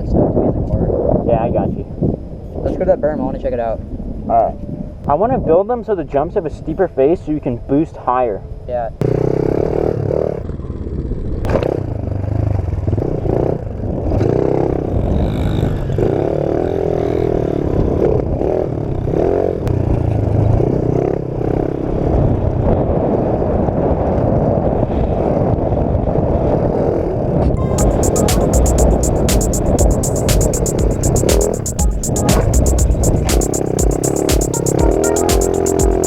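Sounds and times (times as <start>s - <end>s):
sharp knock: 27.8s - 36.0s.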